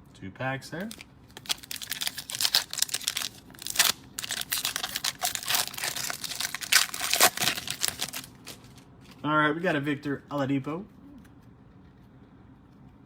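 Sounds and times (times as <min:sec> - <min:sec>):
plastic wrappers tearing and crinkling: 0:00.8 - 0:08.8.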